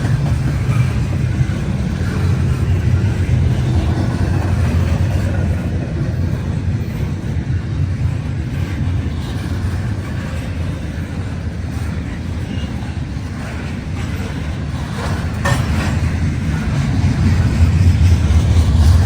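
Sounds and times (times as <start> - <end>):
freight train wheels rumbling: 0.0 - 19.0.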